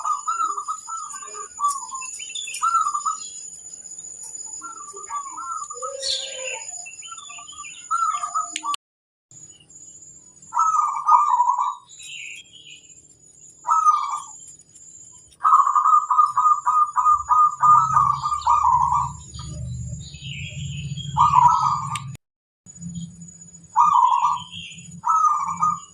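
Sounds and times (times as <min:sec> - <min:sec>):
doves cooing: 0:00.0 - 0:03.4, 0:04.6 - 0:08.7, 0:10.5 - 0:11.9, 0:13.6 - 0:14.4, 0:15.3 - 0:22.2, 0:23.7 - 0:25.9
bird chirps: 0:00.0 - 0:25.9.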